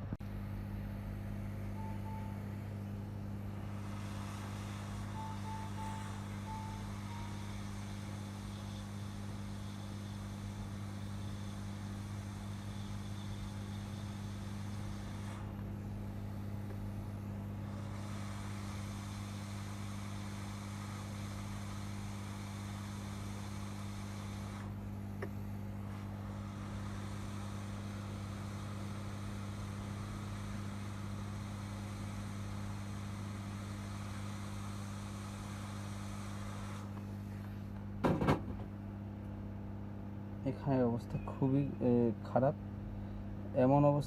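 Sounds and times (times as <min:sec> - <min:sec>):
hot-air rework station humming: 0:00.0 - 0:44.0
short beeps: 0:01.7 - 0:02.6, 0:05.1 - 0:07.8.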